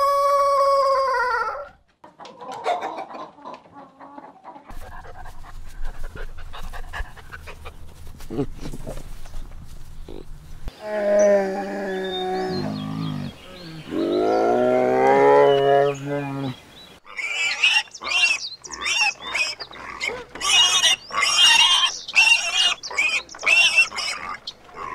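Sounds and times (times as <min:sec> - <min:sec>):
bears moaning: 0:10.0 - 0:16.6
pig squealing and grunting: 0:11.1 - 0:24.9.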